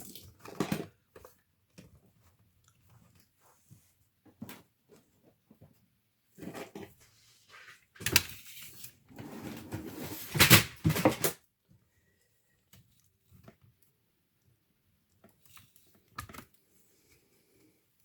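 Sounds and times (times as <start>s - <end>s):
hands handling laptop plastic parts: 15.1s - 16.8s.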